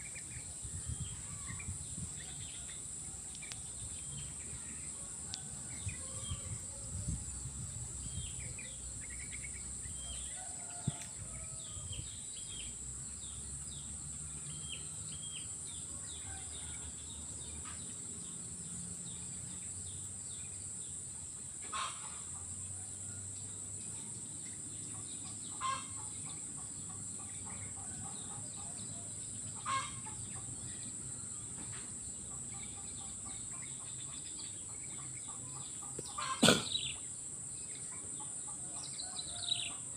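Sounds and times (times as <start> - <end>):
loud bird calls: 25.5 - 26.1, 29.6 - 30.2, 35.3 - 37.1.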